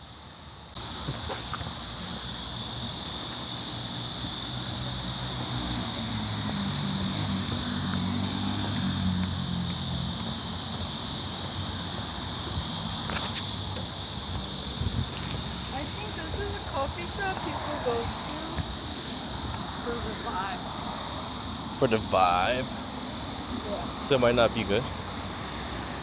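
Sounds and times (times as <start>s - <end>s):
high-pitched insect chorus: 0.0s - 26.0s
low engine hum passing: 3.6s - 12.9s.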